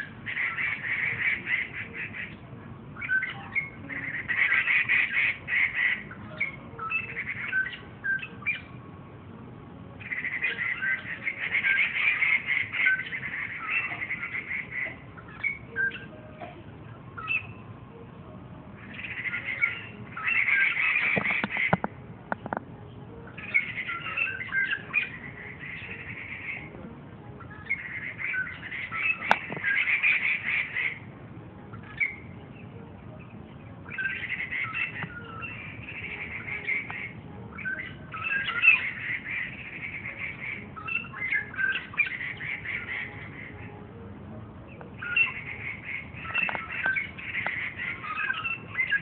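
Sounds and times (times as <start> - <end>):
songbird chattering song: 0.0 - 9.3, 9.9 - 49.0.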